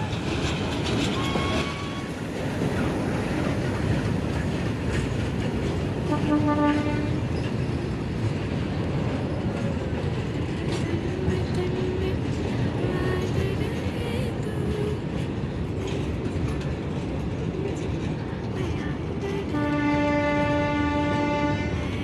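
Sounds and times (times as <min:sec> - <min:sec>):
train wheels clattering: 0:00.0 - 0:22.0
short train horn: 0:01.2 - 0:02.2, 0:06.1 - 0:07.3, 0:19.5 - 0:21.9.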